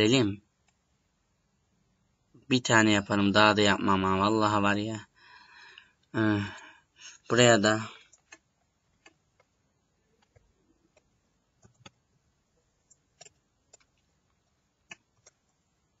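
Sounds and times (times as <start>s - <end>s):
computer mouse clicks: 8.0s - 9.6s, 10.2s - 12.0s, 12.8s - 15.6s.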